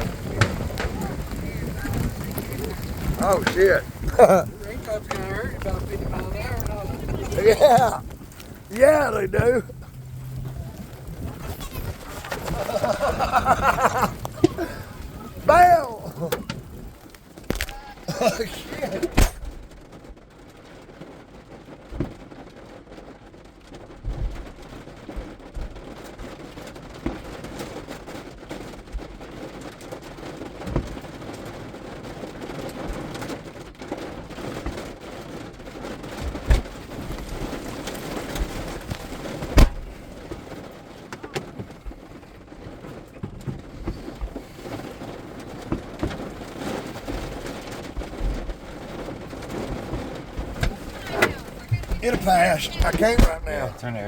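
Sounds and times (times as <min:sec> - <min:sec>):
loud cracks: 0:00.0 - 0:19.8
heavy rain: 0:00.0 - 0:54.0.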